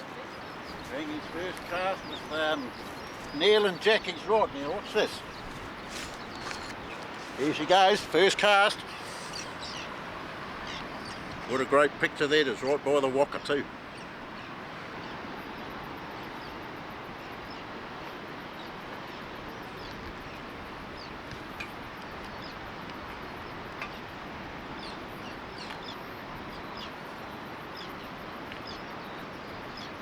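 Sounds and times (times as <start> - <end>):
high falling bird chirps: 0.0 - 11.5
surf washing on beach: 0.0 - 30.0.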